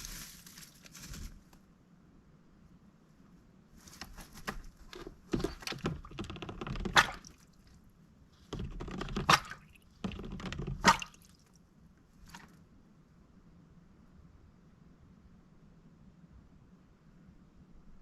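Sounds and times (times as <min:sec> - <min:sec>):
duck splashing in water: 0:06.8 - 0:07.6, 0:10.8 - 0:11.5.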